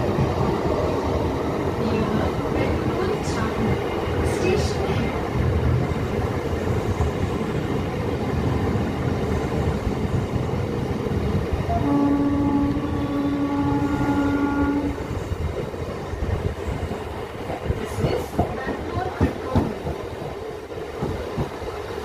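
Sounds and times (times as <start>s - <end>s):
train rumbling: 0.0s - 22.0s
train horn blast: 11.7s - 15.1s.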